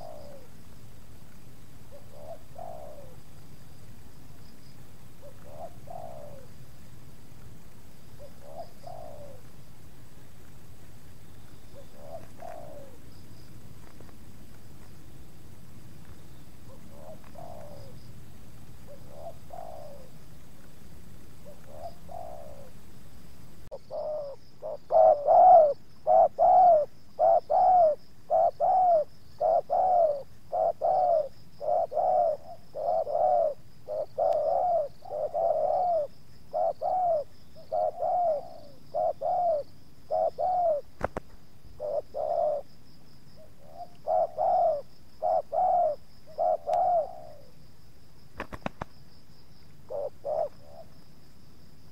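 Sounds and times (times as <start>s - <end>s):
doves cooing: 0.0s - 0.6s, 1.9s - 3.3s, 5.1s - 6.6s, 8.1s - 9.5s, 11.3s - 13.2s, 16.6s - 18.2s, 18.9s - 20.2s, 21.4s - 22.8s, 23.7s - 42.8s, 43.4s - 47.6s, 49.9s - 51.1s.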